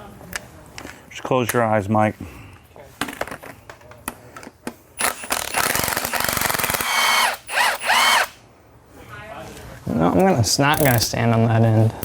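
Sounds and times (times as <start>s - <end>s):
light clicks of handling parts: 0.3s - 1.6s
impact wrench hammering: 5.0s - 8.4s, 10.8s - 11.1s
tool whine: 5.0s - 8.4s.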